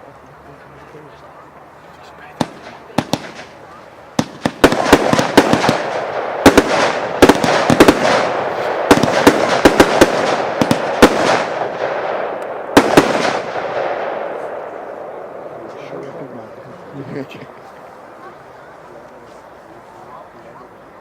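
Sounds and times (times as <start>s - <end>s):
fireworks bangs: 2.3s - 15.5s
fireworks crackling hiss: 2.4s - 11.8s.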